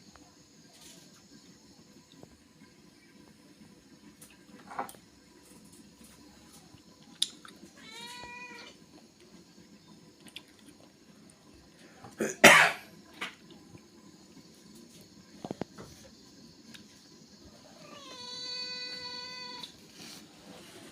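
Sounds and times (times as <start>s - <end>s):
cat meowing: 7.8s - 8.8s, 17.7s - 19.7s.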